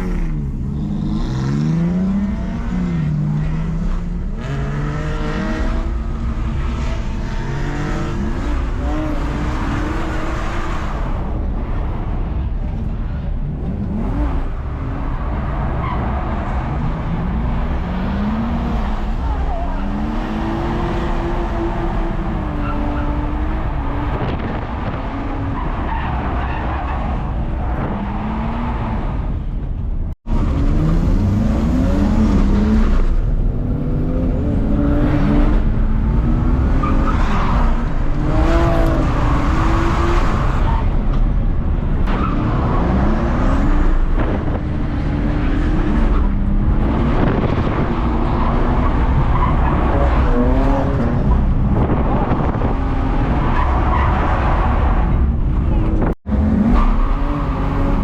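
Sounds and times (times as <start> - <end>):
tyres skidding: 0.0 - 58.0.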